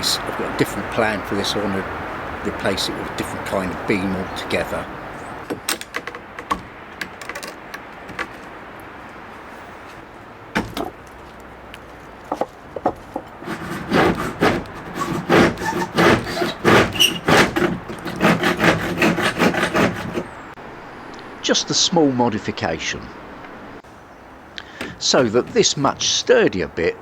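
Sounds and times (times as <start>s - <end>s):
knocks on wood: 5.5s - 7.4s, 10.6s - 11.0s, 12.3s - 20.0s
scraping strokes on wood: 12.3s - 20.6s.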